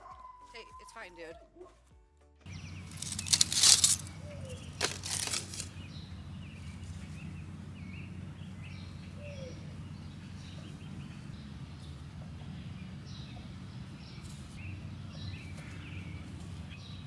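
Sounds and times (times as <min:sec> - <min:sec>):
small birds chirping: 0:02.5 - 0:17.0
steady low hum: 0:02.5 - 0:17.0
brief rustle: 0:02.9 - 0:05.7.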